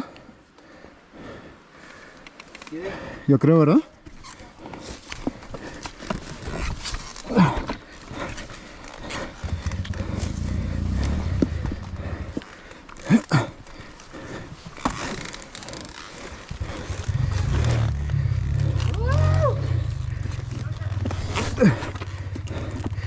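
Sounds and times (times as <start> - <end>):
dirt bike engine chugging: 9.3 - 12.6, 16.6 - 23.0.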